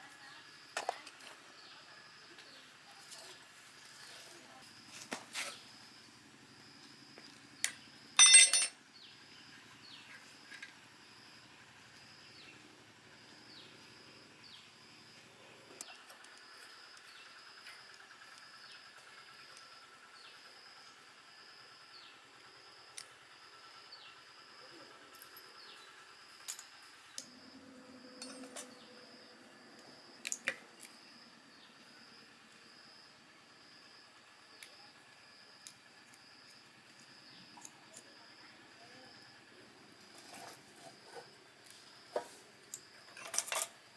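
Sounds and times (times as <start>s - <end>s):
loud ringing clink: 8.2s - 8.8s, 28.2s - 28.7s
metallic clinks of tools: 8.2s - 8.8s, 28.2s - 28.8s, 42.7s - 43.8s
high insect drone: 8.8s - 43.2s.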